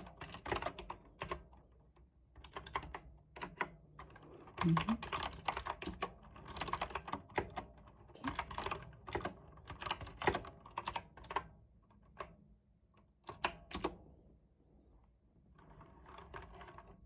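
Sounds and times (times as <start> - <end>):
typing on mechanical keyboard: 0.0 - 1.7, 2.4 - 12.4, 13.2 - 14.0.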